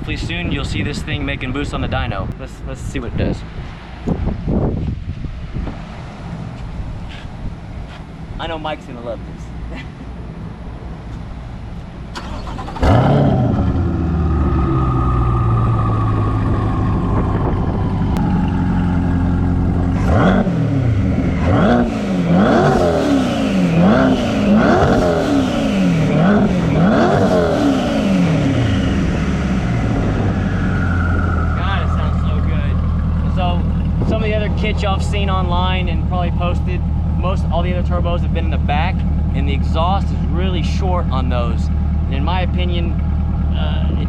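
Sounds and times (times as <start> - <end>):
car engine starting and idling: 5.6 - 44.0
engine revs: 12.1 - 44.0.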